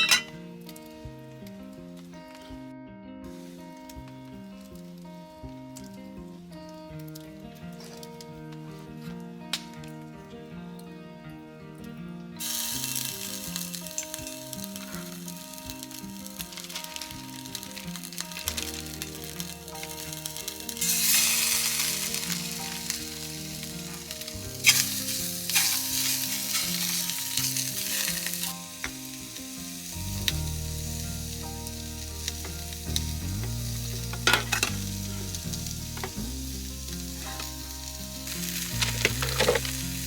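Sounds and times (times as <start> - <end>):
food sizzling in a pan: 0.0 - 0.4, 12.4 - 40.0
background music with bass: 0.0 - 40.0.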